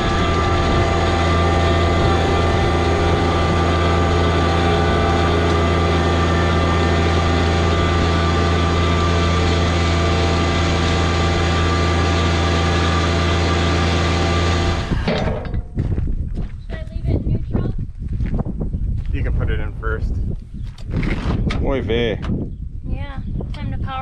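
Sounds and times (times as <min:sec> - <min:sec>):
tractor diesel engine running: 0:00.0 - 0:16.1.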